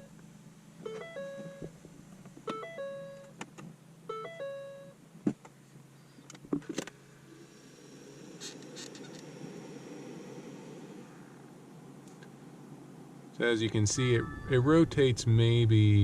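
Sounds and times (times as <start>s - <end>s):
fan whirring with high whine: 5.8s - 16.0s.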